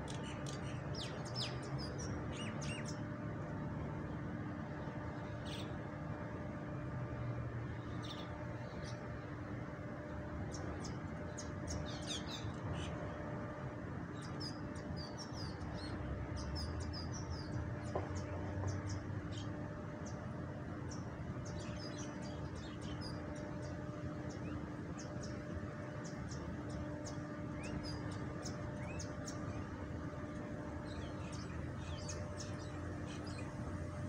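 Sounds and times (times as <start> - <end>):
small birds chirping: 0.0 - 3.1, 7.7 - 9.3, 9.9 - 13.2, 20.8 - 34.0
low city hum: 0.0 - 34.0.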